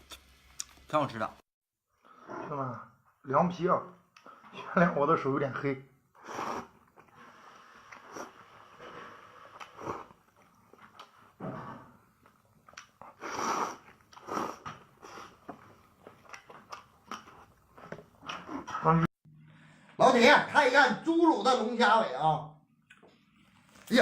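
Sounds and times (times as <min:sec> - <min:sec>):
person chewing noodles: 0:06.2 - 0:11.3, 0:12.2 - 0:18.7.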